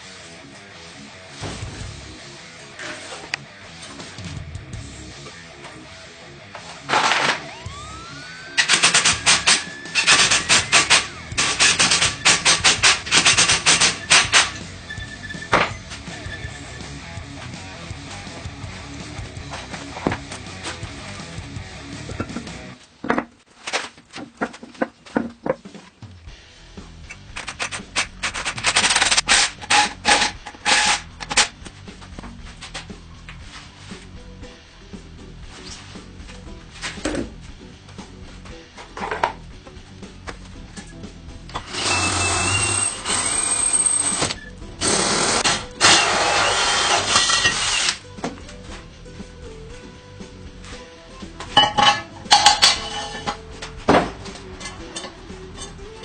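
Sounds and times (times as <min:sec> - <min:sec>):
background music: 0:00.0 - 0:23.0, 0:24.4 - 0:56.0
rapid hammer blows: 0:07.0 - 0:14.6
loud rapid rattling bursts: 0:08.6 - 0:14.6, 0:27.4 - 0:31.5, 0:44.8 - 0:48.0.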